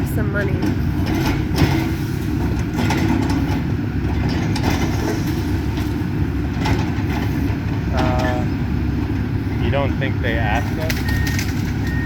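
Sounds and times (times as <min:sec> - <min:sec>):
excavator diesel engine running: 0:00.0 - 0:12.0
debris cracking and knocking: 0:10.8 - 0:12.0.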